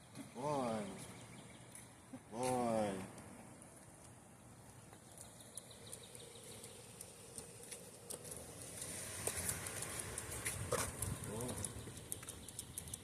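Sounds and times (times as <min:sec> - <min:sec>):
footsteps walking: 0:01.0 - 0:05.4, 0:06.5 - 0:12.4
light irregular clicks: 0:01.6 - 0:13.0.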